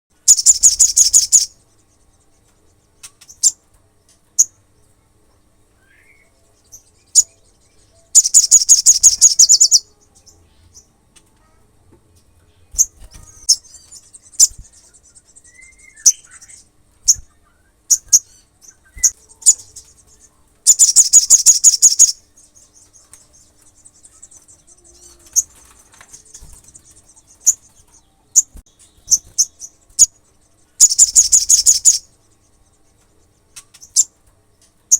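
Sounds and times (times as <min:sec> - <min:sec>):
bird chirps: 0:00.1 - 0:11.6, 0:12.5 - 0:34.9
faint high twittering: 0:00.1 - 0:11.6, 0:12.4 - 0:34.9
bird trilling: 0:00.2 - 0:01.6, 0:07.1 - 0:10.0, 0:12.8 - 0:32.2.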